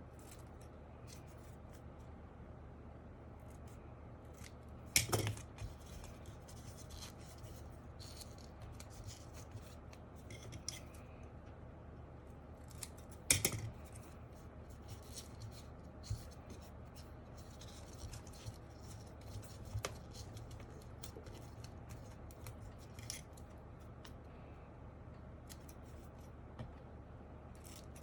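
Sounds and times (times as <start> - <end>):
material scratching and rubbing: 5.4 - 11.0, 12.6 - 23.6.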